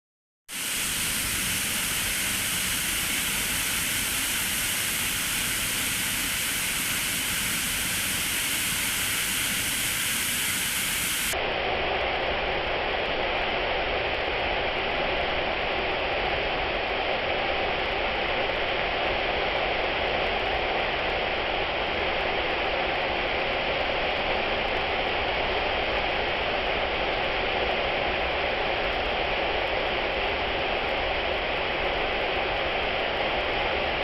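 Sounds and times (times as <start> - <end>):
waterfall rushing: 0.6 - 11.4.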